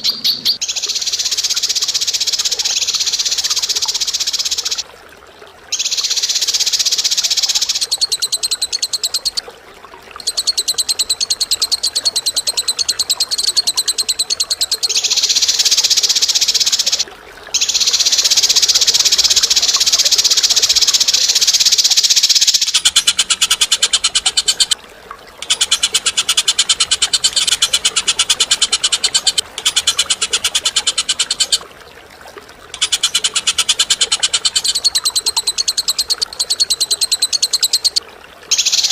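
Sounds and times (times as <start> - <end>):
bird rattling trills: 25.4 - 31.6.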